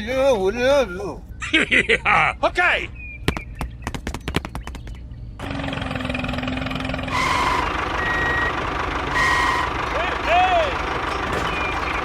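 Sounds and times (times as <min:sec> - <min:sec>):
reversing beeps: 0:07.3 - 0:08.6.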